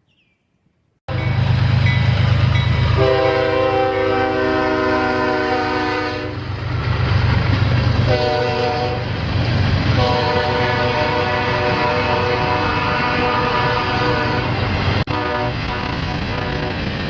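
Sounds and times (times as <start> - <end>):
passing train rumble: 1.1 - 17.0
locomotive air horn blasts: 3.0 - 6.5, 8.1 - 9.0, 10.0 - 16.8.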